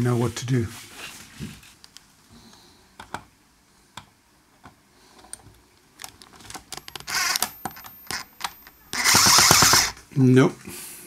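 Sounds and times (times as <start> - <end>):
tools clicking and tapping: 6.7 - 9.9.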